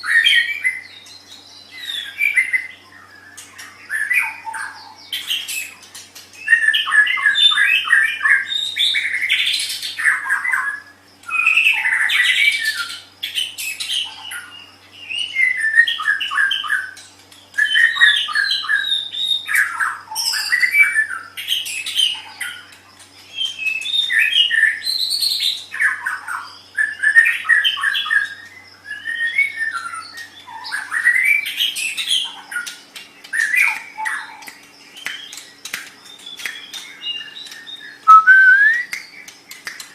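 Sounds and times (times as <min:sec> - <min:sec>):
songbird singing whistles: 0:00.0 - 0:22.6, 0:23.3 - 0:39.9.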